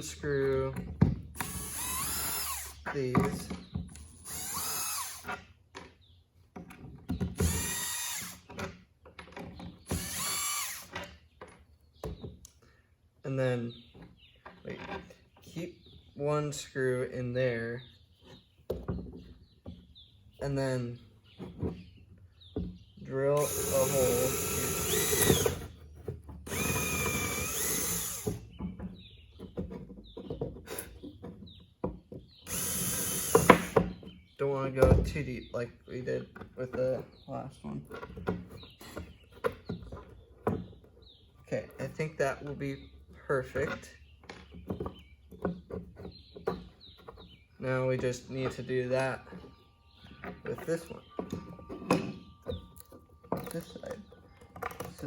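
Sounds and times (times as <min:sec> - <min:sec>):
power drill backing out screws: 0:00.6 - 0:03.5, 0:04.1 - 0:05.4, 0:07.2 - 0:08.8, 0:09.5 - 0:11.2, 0:23.3 - 0:25.8, 0:26.4 - 0:28.4, 0:32.4 - 0:34.0
small clicks and knocks: 0:50.0 - 0:55.0.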